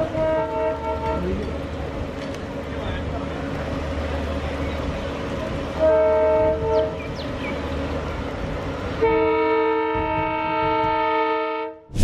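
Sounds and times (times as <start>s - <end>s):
train horn blasts: 0.0s - 1.4s, 5.7s - 7.1s, 9.0s - 11.9s
moving train rumbling: 0.0s - 12.0s.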